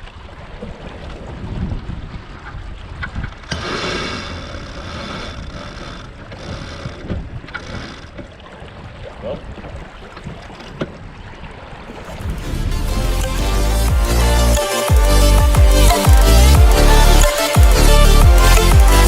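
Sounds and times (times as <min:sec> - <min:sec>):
wind buffeting microphone: 0:00.0 - 0:12.8
water rushing and splashing: 0:00.0 - 0:19.0.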